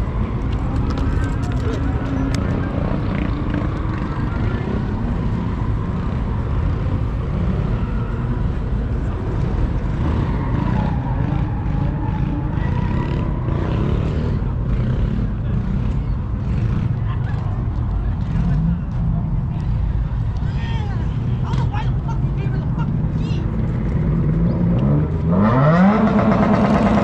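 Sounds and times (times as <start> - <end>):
car engines rumbling: 0.0 - 27.0
people talking: 20.4 - 23.5.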